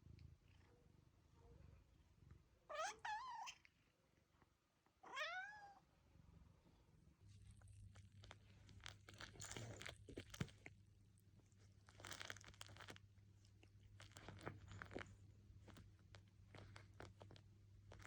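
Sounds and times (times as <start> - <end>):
crunching and crackling clicks: 7.6 - 18.0.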